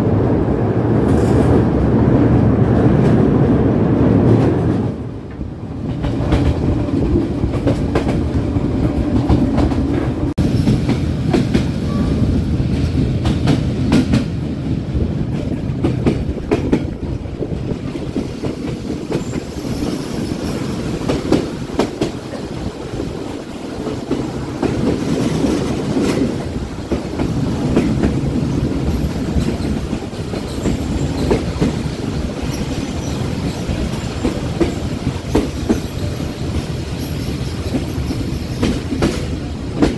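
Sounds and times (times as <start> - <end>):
train rumbling on rails: 0.0 - 39.9
wheels clacking over rail joints: 15.2 - 39.9.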